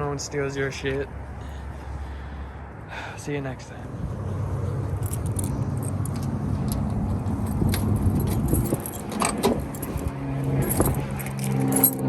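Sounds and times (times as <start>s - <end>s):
car engine humming: 4.0s - 12.0s
keys jangling and clicking: 4.9s - 12.0s.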